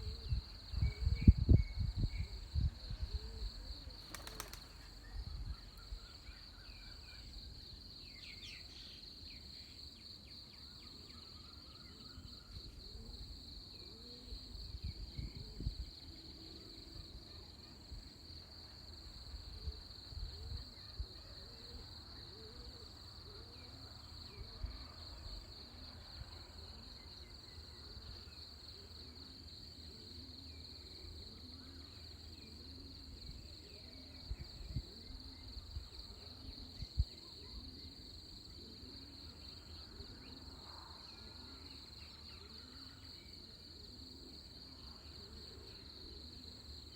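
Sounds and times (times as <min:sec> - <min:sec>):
low rumble of breeze: 0:00.0 - 0:08.4, 0:12.5 - 0:17.0, 0:33.0 - 0:37.7
crickets trilling: 0:00.0 - 0:46.9.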